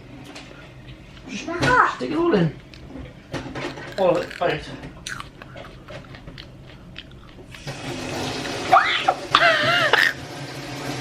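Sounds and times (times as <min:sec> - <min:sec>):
water running from tap: 0:07.6 - 0:11.0.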